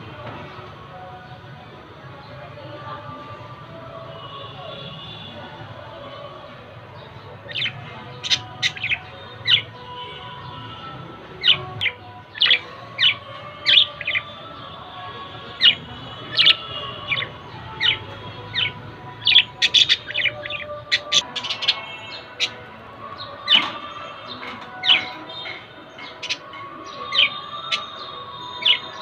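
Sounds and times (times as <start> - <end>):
budgerigars chirping: 7.5 - 9.7, 11.4 - 14.3, 15.6 - 22.6.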